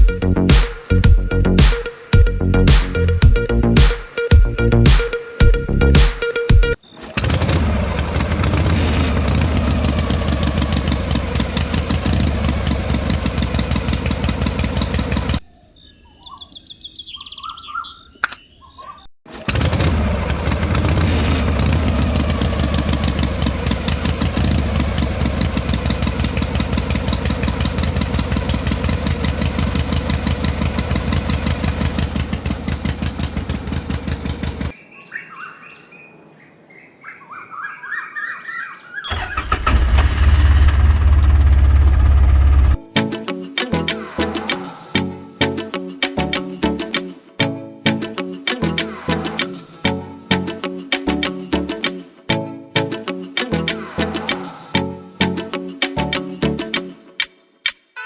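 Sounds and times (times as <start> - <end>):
bird chirps: 15.4 - 19.1, 34.7 - 39.1.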